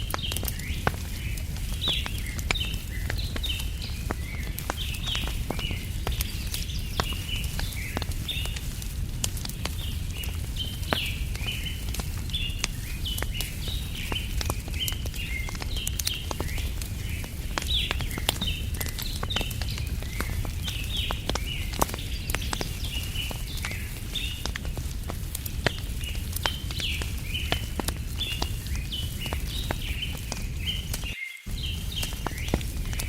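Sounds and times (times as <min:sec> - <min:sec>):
campfire crackling: 0:00.0 - 0:33.0
bird chirping: 0:26.4 - 0:33.0.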